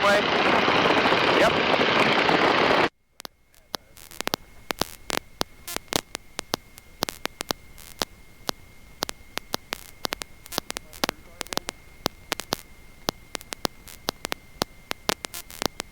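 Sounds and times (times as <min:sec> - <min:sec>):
electrical static hiss: 0:00.0 - 0:15.9
loud cockpit noise: 0:00.0 - 0:15.9
sharp clicks and crackles: 0:00.0 - 0:15.9
thin high whine: 0:00.0 - 0:15.9.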